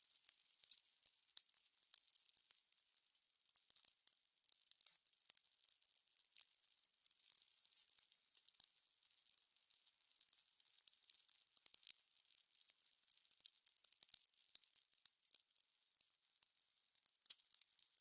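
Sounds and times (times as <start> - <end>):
fire crackling: 0.0 - 2.5.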